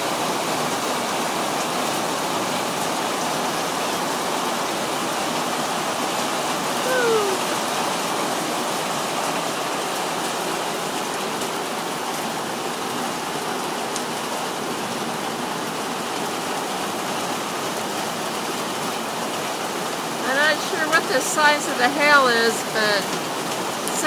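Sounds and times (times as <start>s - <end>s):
heavy rain hissing: 0.0s - 24.0s
hailstones ticking: 22.5s - 24.0s.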